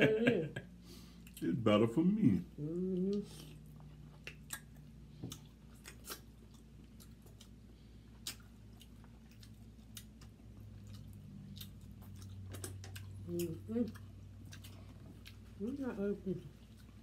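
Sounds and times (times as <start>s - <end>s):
people chewing crab: 2.5s - 17.0s
wet mouth clicks and smacks: 4.1s - 7.5s, 8.2s - 13.1s.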